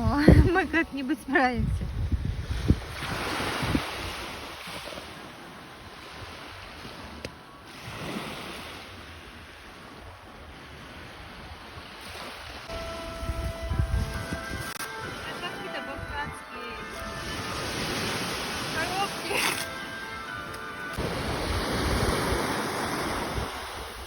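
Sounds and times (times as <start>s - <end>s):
wind buffeting microphone: 0.0s - 4.9s, 9.4s - 19.4s, 21.0s - 24.0s
sea waves washing ashore: 0.0s - 24.0s.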